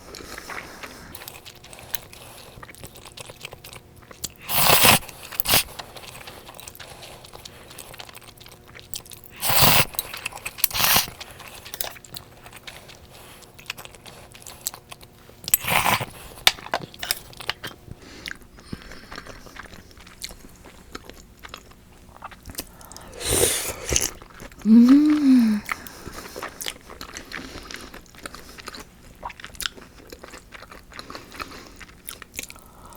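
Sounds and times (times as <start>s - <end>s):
person chewing: 0.2s - 32.9s
noisy bites or slurps: 23.0s - 25.8s.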